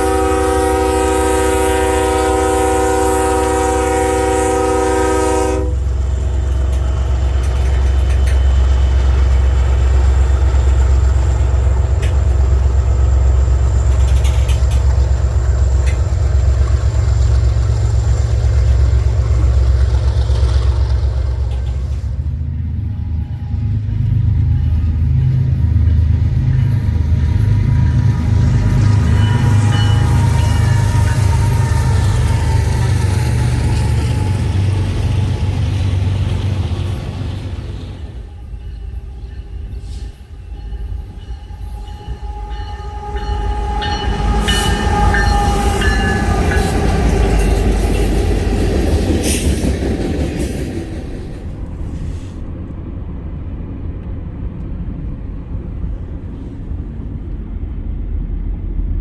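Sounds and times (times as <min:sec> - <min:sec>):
train horn: 0:00.0 - 0:08.4, 0:21.4 - 0:35.2, 0:38.0 - 0:49.5
train locomotives rumbling: 0:00.0 - 0:59.0.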